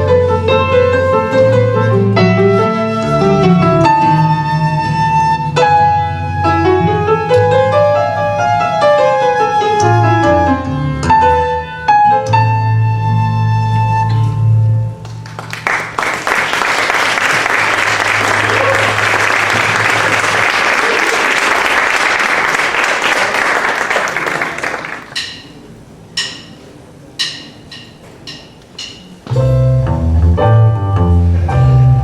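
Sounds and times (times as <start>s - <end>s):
audience applauding: 15.0s - 25.2s.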